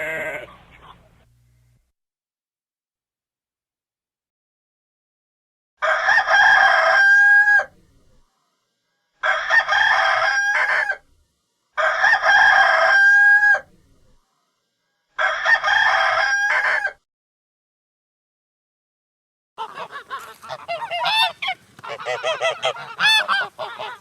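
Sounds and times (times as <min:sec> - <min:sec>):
rooster crowing: 0:05.8 - 0:07.8, 0:09.2 - 0:11.1, 0:11.8 - 0:13.7, 0:15.1 - 0:17.0, 0:19.6 - 0:24.0.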